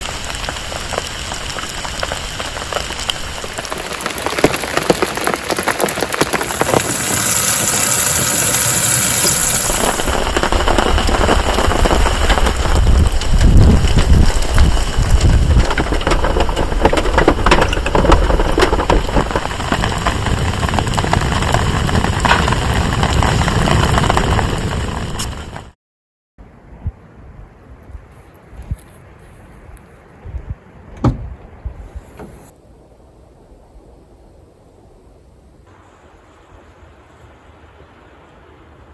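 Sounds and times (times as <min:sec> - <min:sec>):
heavy rain patter: 0:00.0 - 0:25.8
low rumble: 0:06.0 - 0:25.6.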